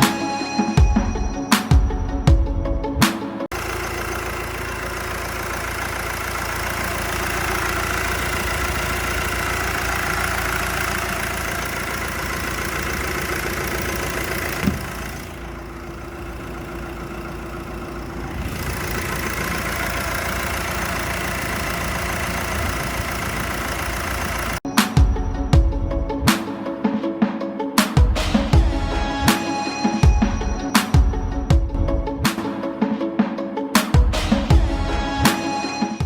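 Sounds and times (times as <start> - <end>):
engine idling: 3.5 - 24.7.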